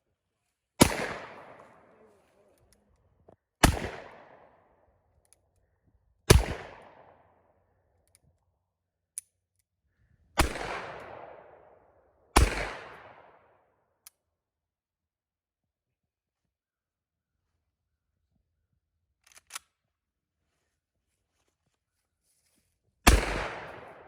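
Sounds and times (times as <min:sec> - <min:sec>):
gunshots echoing: 0:00.8 - 0:02.3, 0:03.6 - 0:04.6, 0:06.3 - 0:07.2, 0:10.4 - 0:11.6, 0:12.4 - 0:13.3, 0:23.1 - 0:24.0.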